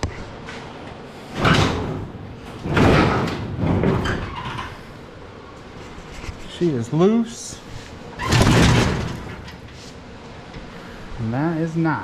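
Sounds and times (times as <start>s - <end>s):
sheet metal scraping and rattling: 1.2s - 5.1s, 7.8s - 10.1s.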